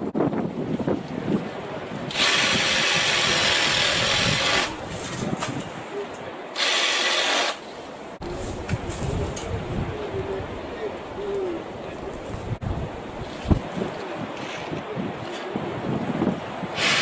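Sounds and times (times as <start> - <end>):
power saw cutting branches: 2.1 - 5.4, 6.6 - 7.8, 16.8 - 17.0.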